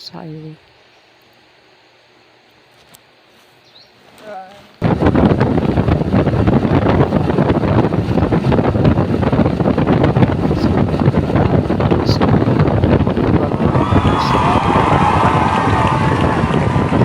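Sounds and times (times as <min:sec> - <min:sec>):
wind buffeting microphone: 0:04.8 - 0:17.0.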